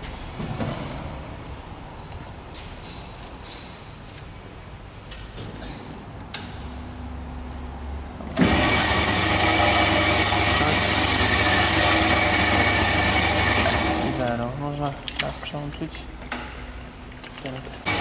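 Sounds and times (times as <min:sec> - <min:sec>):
band saw whining: 0:08.4 - 0:14.3.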